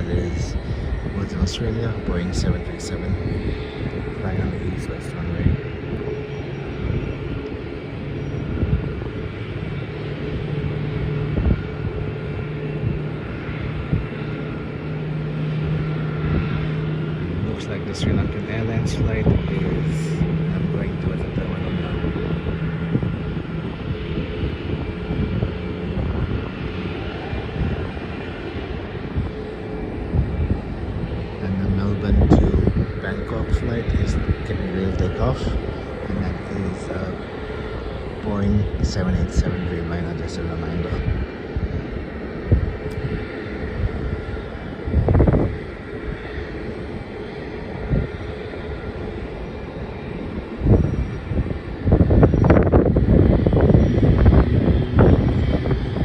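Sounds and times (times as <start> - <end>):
jet engines rumbling with whine: 0.0 - 56.0
wind buffeting microphone: 0.0 - 56.0.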